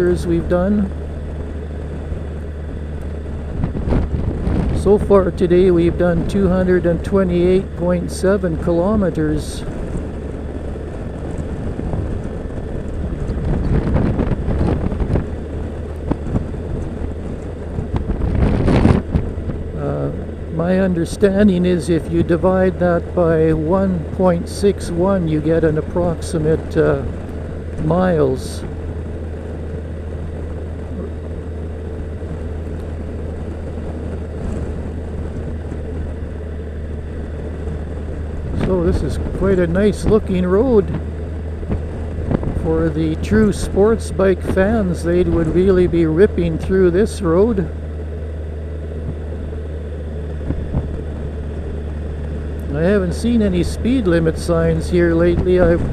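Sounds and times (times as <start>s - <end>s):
motorcycle engine droning: 0.0s - 55.9s
road noise: 0.0s - 55.9s
wind rushing over microphone: 0.0s - 55.9s.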